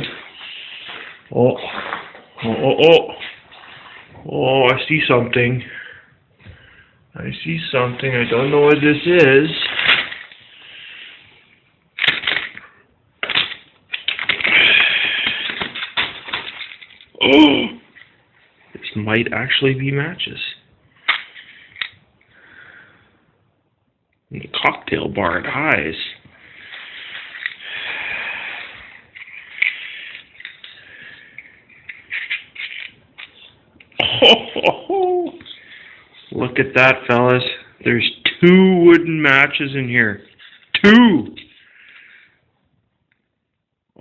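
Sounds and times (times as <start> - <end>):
container rustling and crackling: 7.5 - 10.5, 12.0 - 17.2, 28.6 - 33.6.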